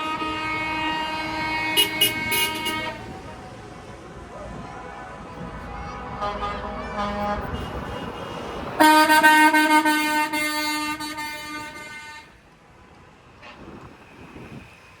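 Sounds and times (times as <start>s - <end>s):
faint horn: 0.0s - 3.2s, 4.6s - 12.4s
truck air horn blast: 0.0s - 3.2s, 4.7s - 12.4s.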